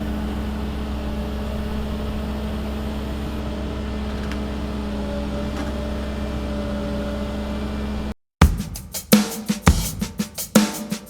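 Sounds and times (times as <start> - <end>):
excavator diesel engine running: 0.0 - 8.2.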